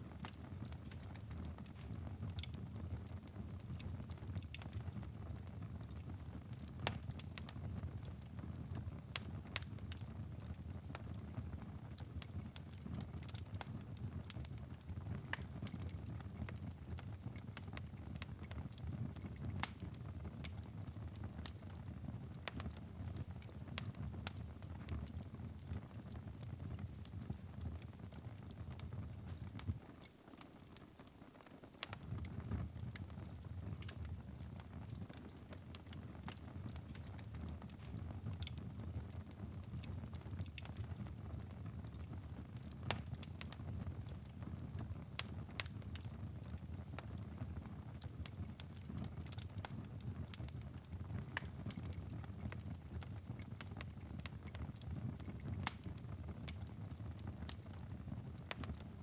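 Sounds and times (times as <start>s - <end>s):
wood fire crackling and popping: 0.0s - 59.0s
low rumble of flames: 31.8s - 59.0s.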